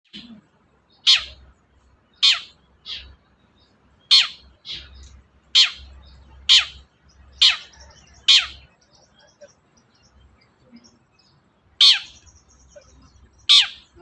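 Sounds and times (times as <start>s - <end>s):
shrike harsh calls: 1.0s - 1.5s, 2.2s - 3.2s, 4.0s - 9.5s, 11.8s - 14.0s.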